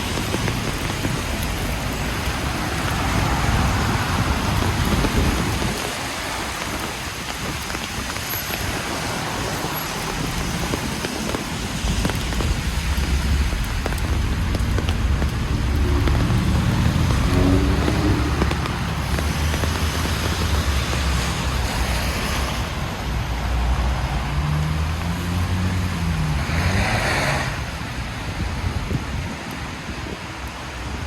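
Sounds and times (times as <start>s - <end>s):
tyres hissing on wet road: 0.0s - 31.0s
vehicle passing close: 11.6s - 22.7s, 24.0s - 28.0s
passing car engines hum: 12.2s - 22.8s, 23.5s - 28.2s.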